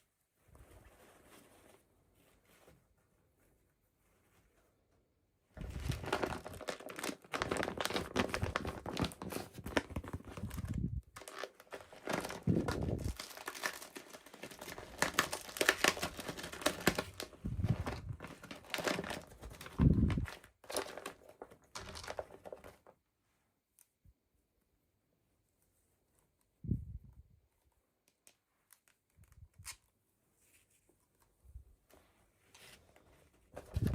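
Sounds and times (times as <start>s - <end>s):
packaging crinkling and tearing: 5.6s - 22.9s.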